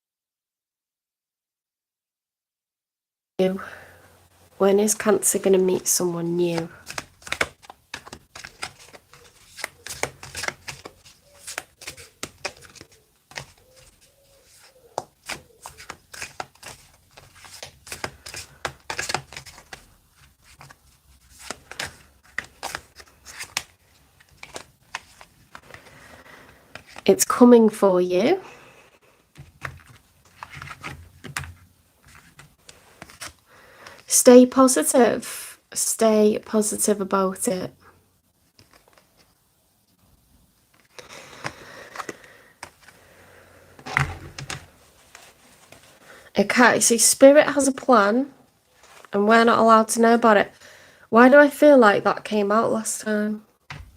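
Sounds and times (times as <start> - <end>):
cards being shuffled: 6.3 - 27.2, 29.3 - 34.1, 38.5 - 39.4, 40.7 - 43.0, 43.8 - 46.0.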